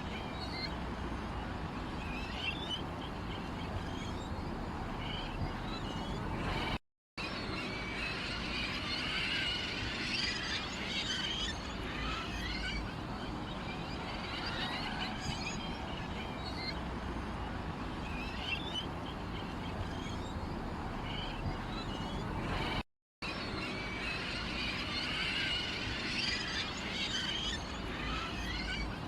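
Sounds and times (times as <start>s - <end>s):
small birds chirping: 2.0s - 6.8s, 18.0s - 22.8s.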